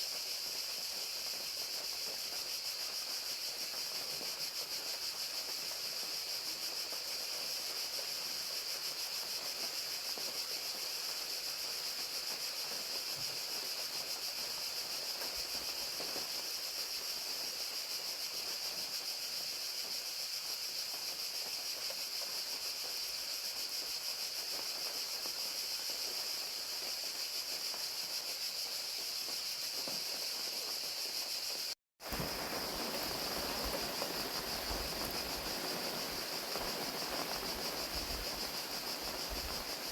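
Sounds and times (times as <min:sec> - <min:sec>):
crickets chirping: 0:00.0 - 0:39.9
rain falling: 0:32.0 - 0:39.9.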